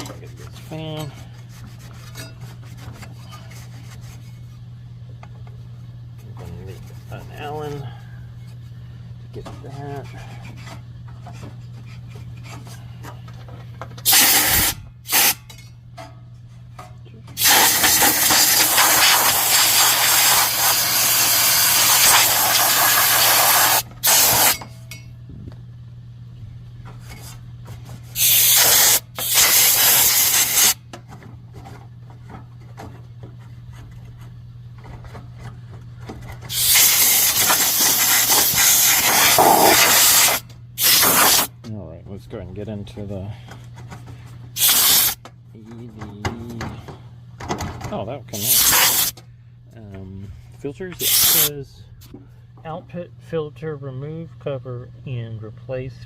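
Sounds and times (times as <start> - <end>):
steady low hum: 0.0 - 56.0
compressed air blow gun hissing: 14.1 - 15.4, 17.4 - 24.6, 28.2 - 30.8, 36.5 - 41.5, 44.6 - 45.2, 48.4 - 49.1, 51.0 - 51.5.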